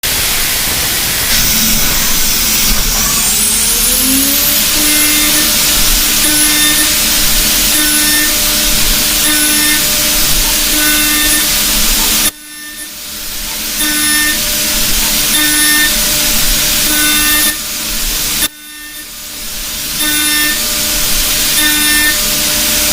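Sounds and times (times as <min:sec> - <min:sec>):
milling machine cutting hiss: 0:00.1 - 0:22.9
high-pitched cutting tone: 0:01.3 - 0:12.9.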